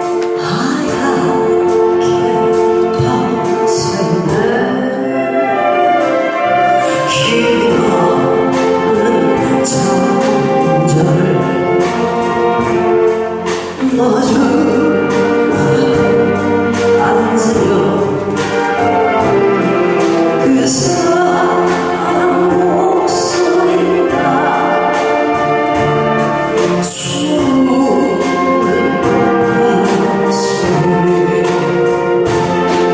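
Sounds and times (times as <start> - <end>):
saxophone ensemble: 0.0 - 32.9.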